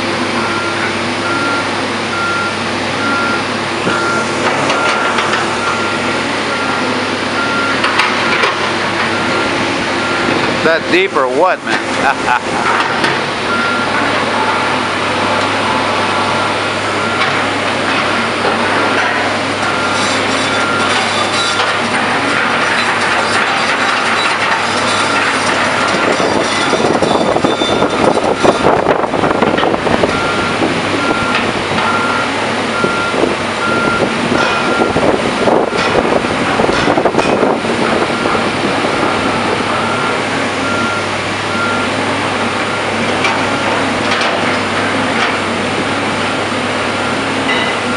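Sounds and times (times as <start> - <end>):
heavy diesel machinery running: 0.0 - 47.9
backup alarm beeping: 0.4 - 8.5, 13.5 - 14.7, 25.8 - 36.0, 39.0 - 42.9.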